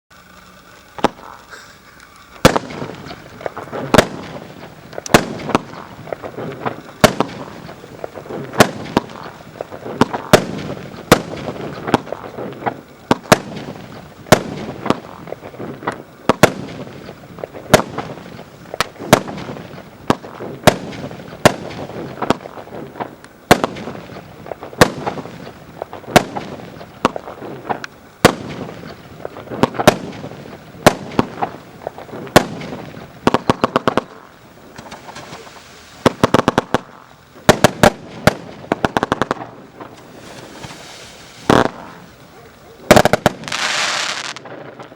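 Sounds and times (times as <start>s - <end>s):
fireworks crackling: 0.1s - 44.9s
fireworks bangs: 0.2s - 44.9s.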